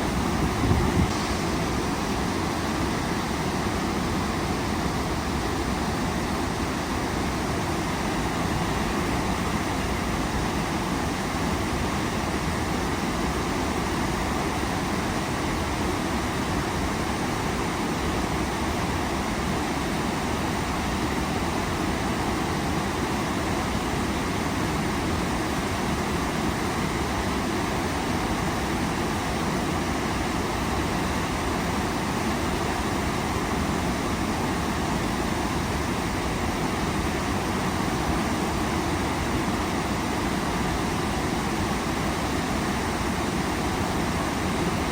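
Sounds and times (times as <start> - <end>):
waterfall rushing: 0.0 - 5.5.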